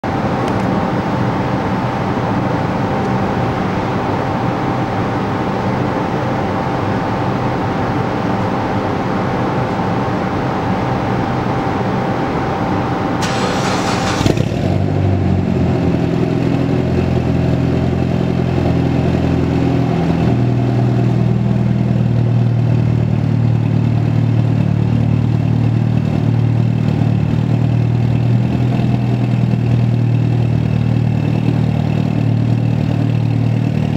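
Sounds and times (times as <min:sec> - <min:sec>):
steady noisy hiss with whine: 0:00.1 - 0:14.2
car engine starting and idling: 0:00.1 - 0:33.9.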